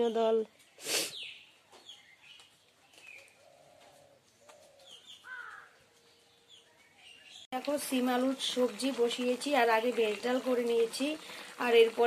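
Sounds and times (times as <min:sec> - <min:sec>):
faint bird calls: 0:00.7 - 0:06.0.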